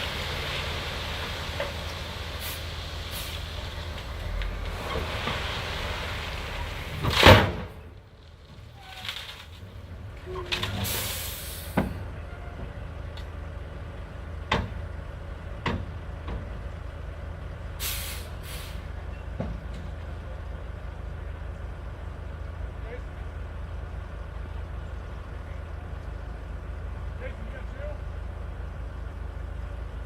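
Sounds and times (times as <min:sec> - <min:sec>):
dump truck engine running: 0:00.0 - 0:30.0
sharp air hiss: 0:02.4 - 0:03.5, 0:10.9 - 0:11.8, 0:17.8 - 0:18.8.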